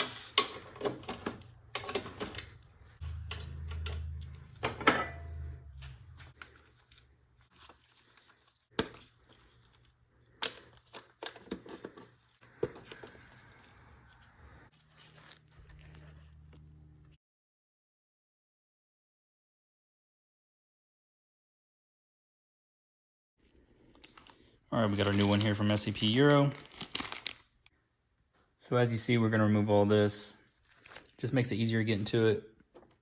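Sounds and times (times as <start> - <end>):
hand tools clicking and scraping: 0.0 - 7.8.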